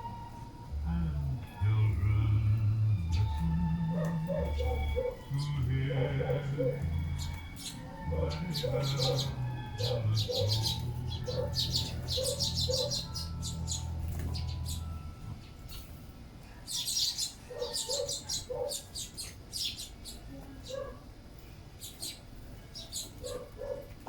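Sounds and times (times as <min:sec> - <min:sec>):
low steady hum: 0:00.0 - 0:17.5
sparrows chirping: 0:00.0 - 0:24.0.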